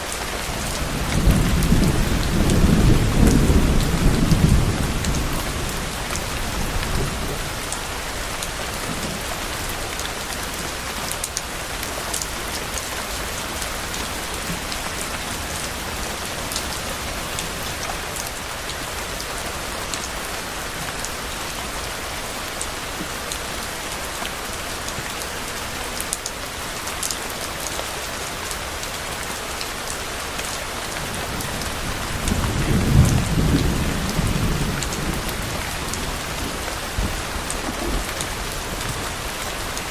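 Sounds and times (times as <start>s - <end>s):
steady rain falling: 0.0s - 39.9s
low rolling thunder: 0.2s - 9.7s, 31.0s - 39.9s.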